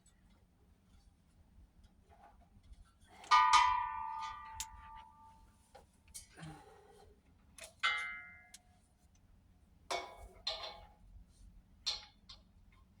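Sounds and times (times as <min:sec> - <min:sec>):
metal clanks from propane tank: 0:09.9 - 0:11.0.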